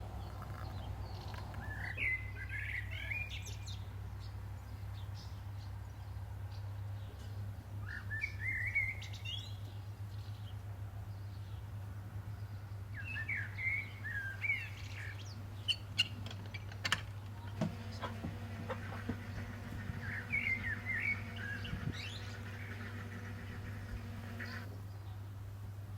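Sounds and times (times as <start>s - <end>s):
songbird warbling: 0.1s - 3.6s, 17.4s - 25.1s
low hum: 17.6s - 24.9s.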